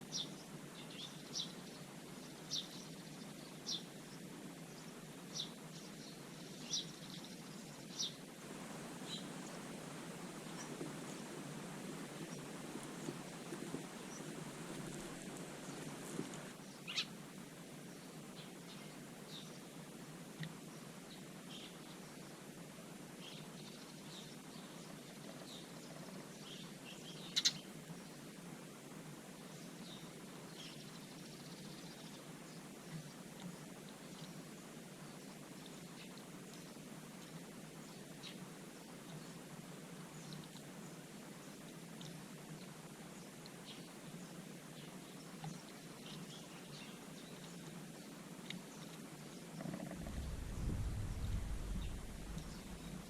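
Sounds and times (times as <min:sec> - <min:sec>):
songbird chirping: 0:00.0 - 0:17.2, 0:40.1 - 0:53.0
low background noise: 0:00.0 - 0:53.0.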